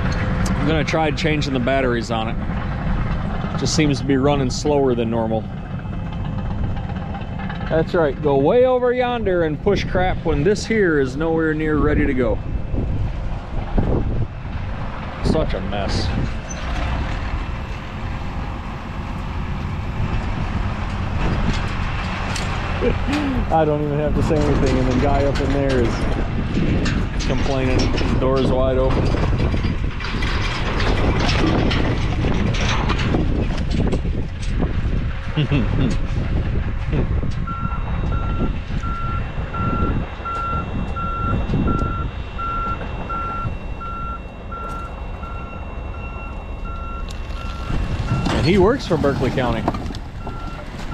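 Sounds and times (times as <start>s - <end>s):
truck engine running: 0.0s - 50.9s
vehicle backup alarm beeping: 36.9s - 50.9s.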